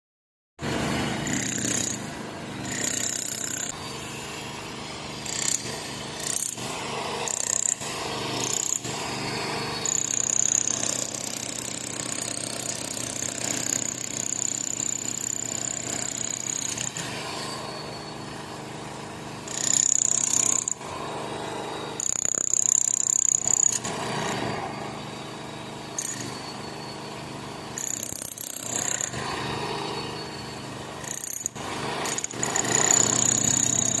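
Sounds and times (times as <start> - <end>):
high steady squeal: 16.9 - 19.0, 23.0 - 31.2.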